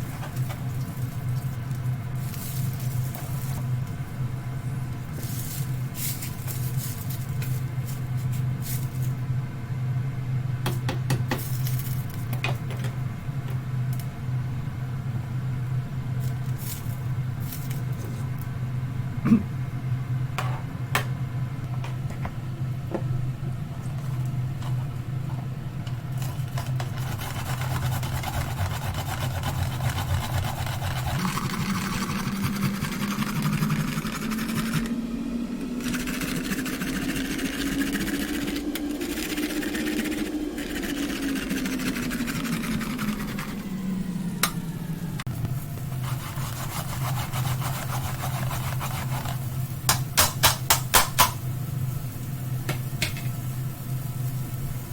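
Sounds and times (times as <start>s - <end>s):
small electric motor humming: 26.8s - 45.2s.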